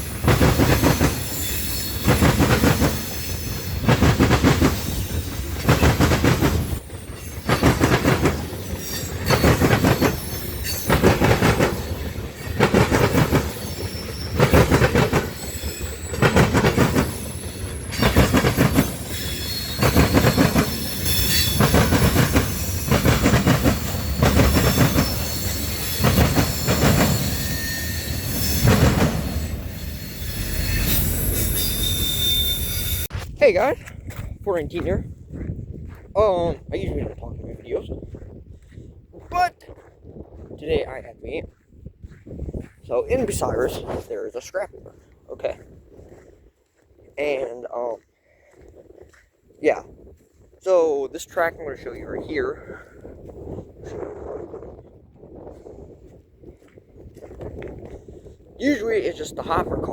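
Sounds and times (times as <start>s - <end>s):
train wheels clattering over rail joints: 0.0s - 33.1s
high-pitched wheel squeal: 13.5s - 16.2s, 17.0s - 21.8s, 23.9s - 33.1s.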